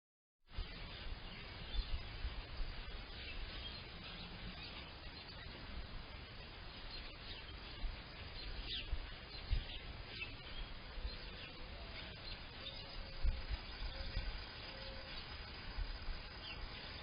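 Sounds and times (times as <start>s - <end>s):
songbirds chirping and singing: 0.5s - 17.0s.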